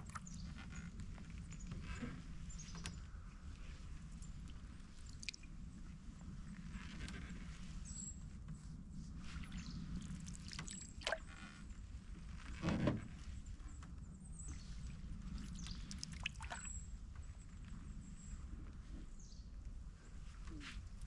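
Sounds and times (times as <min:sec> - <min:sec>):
water dripping off paddle: 0:04.4 - 0:05.4, 0:15.4 - 0:16.8
paddle splashes: 0:09.4 - 0:11.5, 0:15.3 - 0:16.8.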